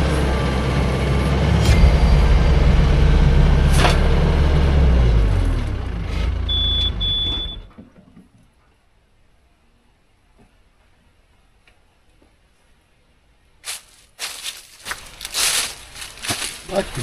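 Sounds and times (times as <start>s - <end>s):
engine running: 0.0s - 7.7s, 13.7s - 17.0s
brief high whine: 1.6s - 5.6s.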